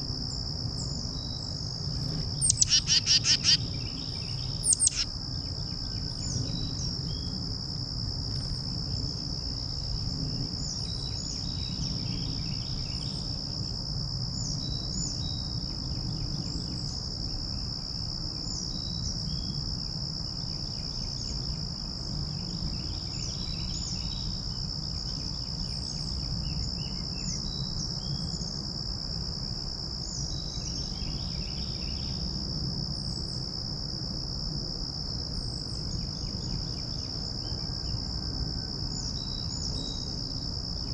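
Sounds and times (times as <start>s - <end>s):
insects droning: 0.0s - 40.9s
bird chirps: 2.3s - 5.1s.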